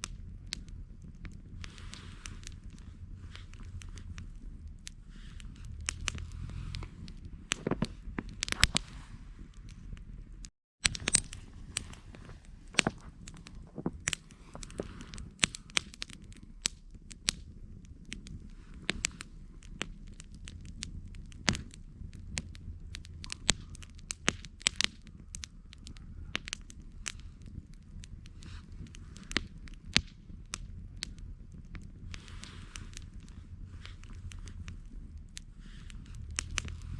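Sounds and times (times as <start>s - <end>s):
campfire crackling and popping: 0.0s - 36.9s
low rumble of flames: 0.0s - 36.9s.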